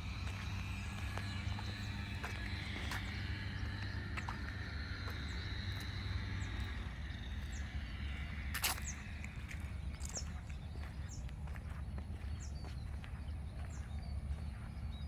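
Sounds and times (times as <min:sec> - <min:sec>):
high insect drone: 0:00.0 - 0:11.3
low rumble: 0:00.0 - 0:15.0.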